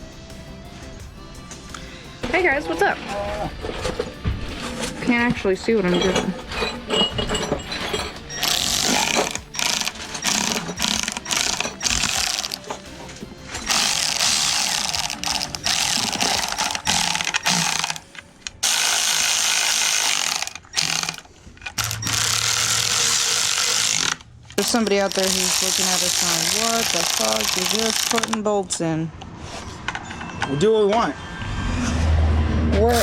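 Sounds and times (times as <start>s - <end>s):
ratchet wrench clicking: 8.3s - 12.8s, 13.6s - 28.4s.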